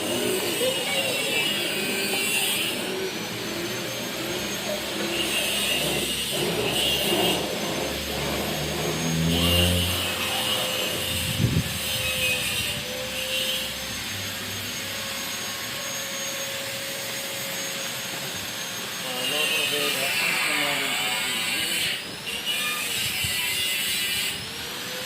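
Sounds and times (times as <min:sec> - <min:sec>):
engine-like tone rising: 0:00.0 - 0:19.0
workshop machinery whining: 0:00.0 - 0:25.0.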